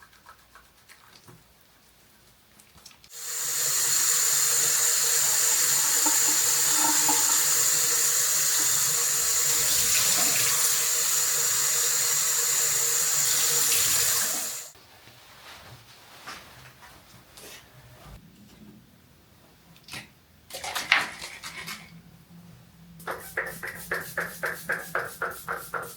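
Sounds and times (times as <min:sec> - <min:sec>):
tap water running into sink: 0:03.1 - 0:14.8, 0:23.1 - 0:25.9.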